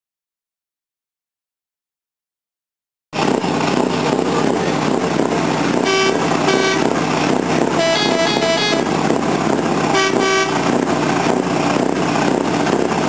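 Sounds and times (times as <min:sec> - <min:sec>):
truck engine running loudly: 0:03.2 - 0:13.0
truck horn blasts: 0:05.7 - 0:07.1, 0:07.7 - 0:09.2, 0:09.8 - 0:10.8.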